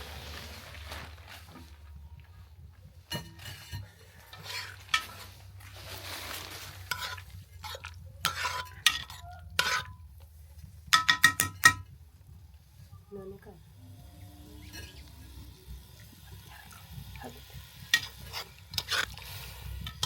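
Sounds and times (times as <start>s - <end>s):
spoon scraping metal pot: 3.1s - 5.8s, 6.7s - 10.2s, 10.9s - 11.9s, 14.0s - 15.6s, 17.6s - 20.0s
spoon clinking in metal pot: 6.9s - 10.0s, 10.9s - 12.0s.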